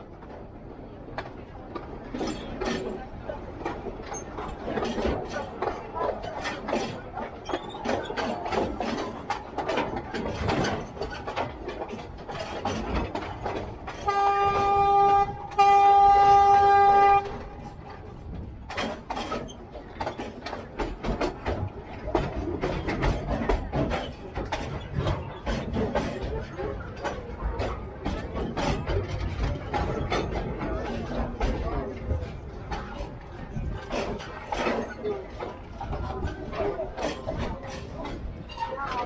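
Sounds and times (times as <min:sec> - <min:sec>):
train clattering and rattling: 0:00.0 - 0:39.0
train horn blasts: 0:14.0 - 0:17.7.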